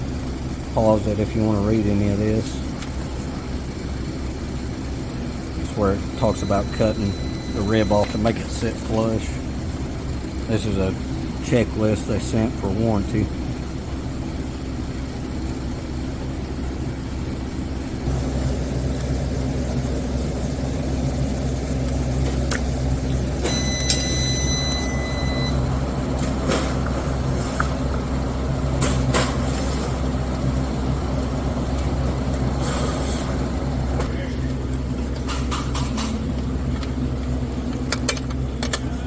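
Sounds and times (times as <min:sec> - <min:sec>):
engine running steadily: 0:00.0 - 0:39.0
short high beep: 0:06.2 - 0:08.2, 0:23.4 - 0:25.6.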